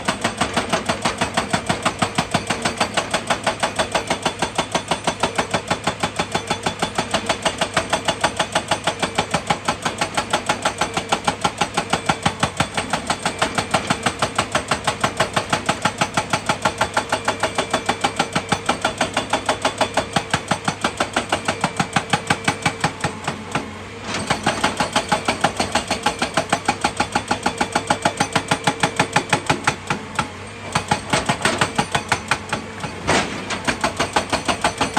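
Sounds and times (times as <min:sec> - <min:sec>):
heavy machinery knocking: 0:07.0 - 0:34.9.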